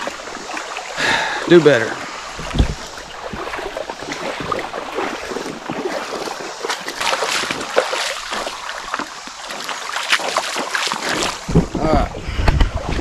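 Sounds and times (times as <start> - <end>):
creek current rushing: 0.0 - 13.0
water splashing and sloshing: 0.0 - 13.0.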